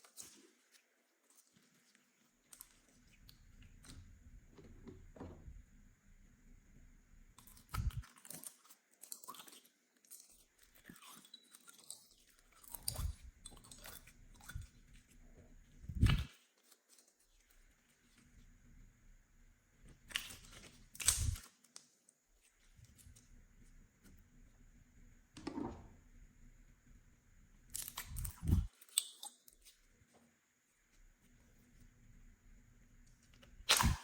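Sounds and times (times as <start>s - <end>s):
slime squishing by hand: 27.7s - 29.7s, 33.6s - 34.0s
loud slime pops: 33.7s - 34.0s.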